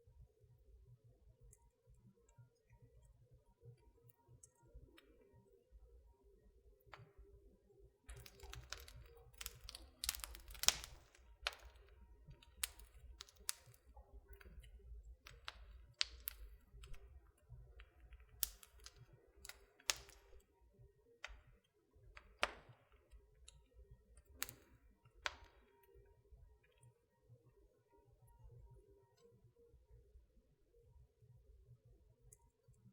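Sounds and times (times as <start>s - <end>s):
fire crackling and popping: 8.1s - 20.5s, 21.2s - 23.6s, 24.2s - 25.8s.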